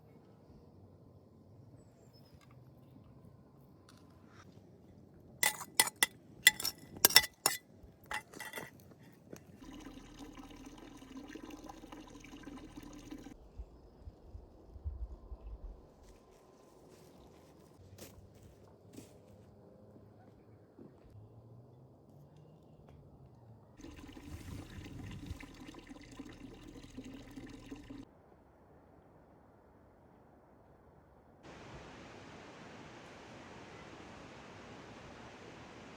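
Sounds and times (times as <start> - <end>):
glassy clinks: 5.4 - 8.7
liquid pouring: 5.4 - 8.7, 9.6 - 13.4, 23.8 - 28.0
water running: 9.6 - 13.4, 23.8 - 28.0.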